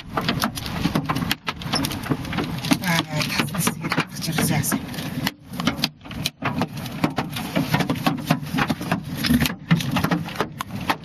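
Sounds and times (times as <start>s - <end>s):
steady low rumble: 1.5s - 5.6s.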